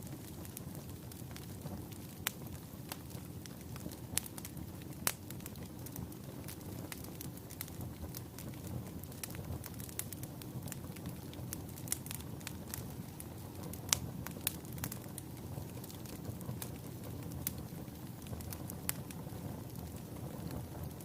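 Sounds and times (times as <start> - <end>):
fire flames rumbling: 0.0 - 21.0
logs crackling and popping: 0.0 - 21.0.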